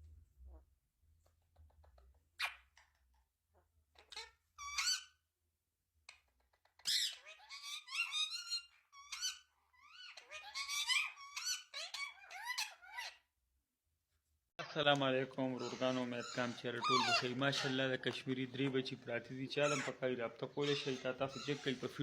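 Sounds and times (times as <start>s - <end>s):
parrot squeaky calls and chatter: 2.4s - 3.0s, 3.9s - 5.2s, 6.1s - 13.3s, 15.5s - 17.9s, 19.6s - 20.0s, 20.6s - 22.0s.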